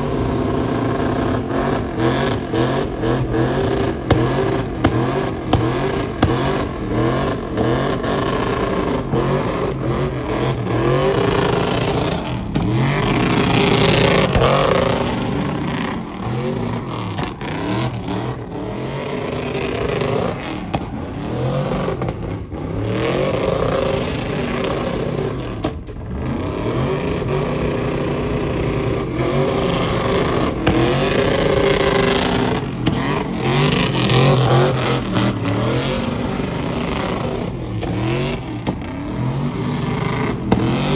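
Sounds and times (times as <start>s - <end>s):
truck engines revving: 0.0s - 40.9s.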